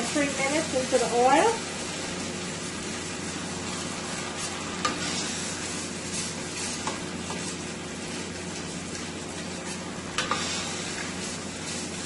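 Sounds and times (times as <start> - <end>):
spices sizzling in hot oil: 0.0 - 12.0
wooden spoon stirring pot: 3.8 - 12.0.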